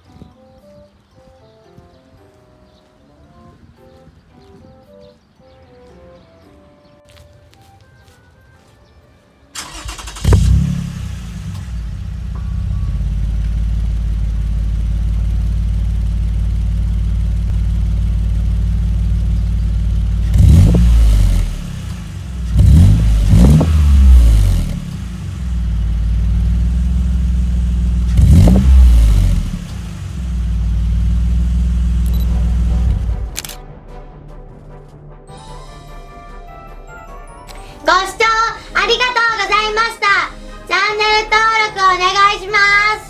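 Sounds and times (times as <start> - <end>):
car engine idling: 9.6 - 33.5
car engine revving: 9.6 - 33.5
car engine starting: 9.6 - 33.6.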